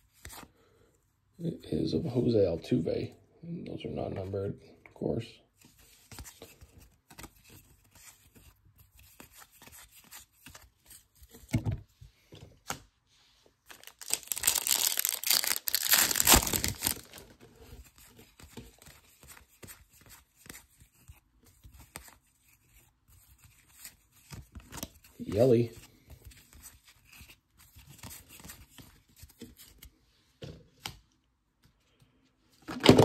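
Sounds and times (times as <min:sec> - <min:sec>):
cards rustling and clicking: 0:05.6 - 0:11.6, 0:13.7 - 0:30.0
plastic wrapper tearing and crinkling: 0:13.7 - 0:17.4.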